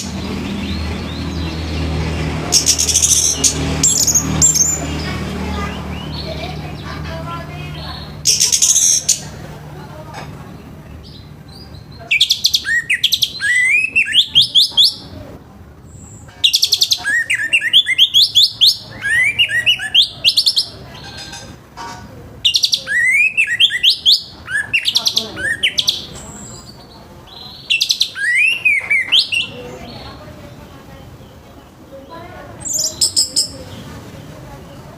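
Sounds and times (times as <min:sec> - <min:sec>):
thrush singing whistled phrases: 0:02.5 - 0:06.4, 0:07.7 - 0:09.3, 0:12.1 - 0:15.1, 0:16.4 - 0:20.8, 0:22.4 - 0:26.6, 0:27.6 - 0:29.6.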